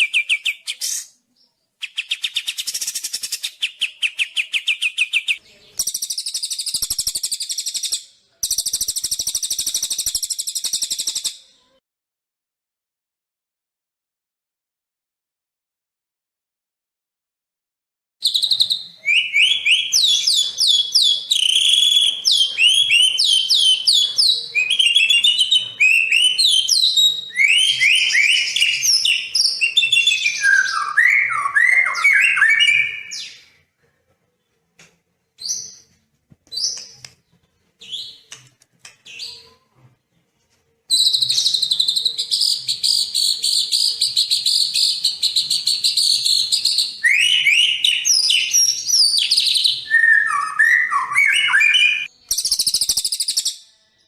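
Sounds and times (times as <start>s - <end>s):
songbird singing: 0.0s - 11.8s, 18.2s - 33.7s.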